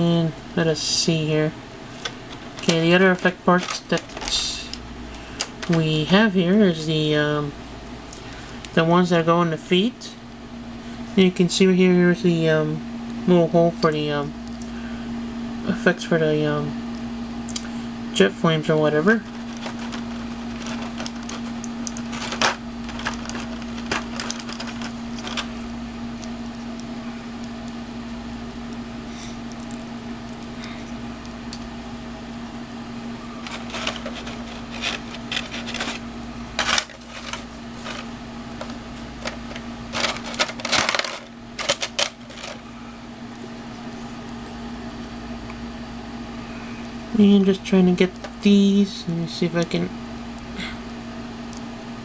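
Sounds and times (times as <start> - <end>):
steady low hum: 0.0 - 52.0
plastic parts clicking and tapping: 19.5 - 25.5, 33.5 - 36.0, 36.6 - 38.0, 38.6 - 42.6.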